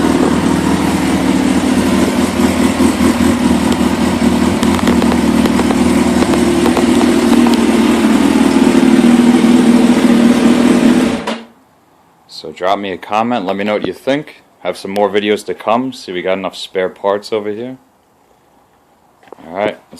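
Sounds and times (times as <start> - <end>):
motorcycle engine running: 0.0 - 11.5.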